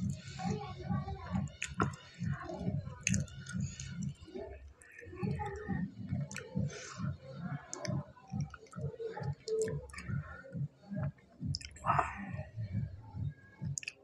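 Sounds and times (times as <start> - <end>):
person chewing food: 1.6 - 2.0, 3.0 - 4.0, 11.5 - 12.1, 13.7 - 14.0
wet mouth clicks: 1.6 - 2.0, 3.0 - 4.1, 6.2 - 6.5, 11.5 - 12.1, 13.7 - 14.0
lip smacks: 1.6 - 2.1, 3.0 - 4.1, 11.1 - 12.1, 13.7 - 14.0.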